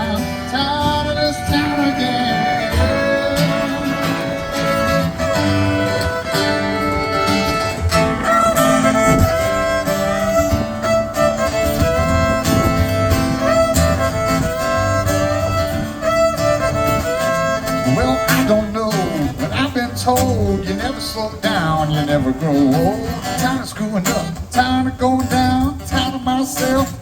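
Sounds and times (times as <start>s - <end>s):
fiddle playing lead: 0.0s - 20.0s
guitar accompaniment: 0.0s - 27.0s.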